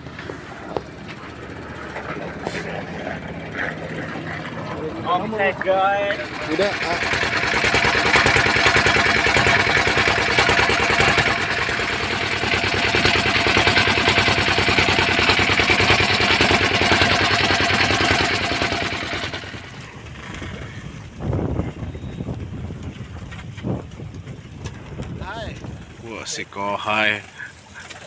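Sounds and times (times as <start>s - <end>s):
small boat engine running: 0.0s - 28.0s.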